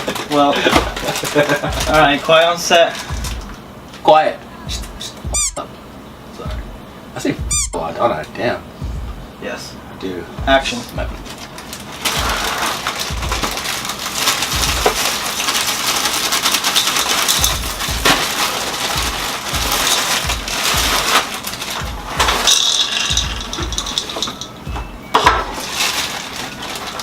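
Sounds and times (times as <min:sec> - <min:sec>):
cereal crunching: 0:11.4 - 0:24.4
spoons clicking against bowls: 0:22.2 - 0:24.6.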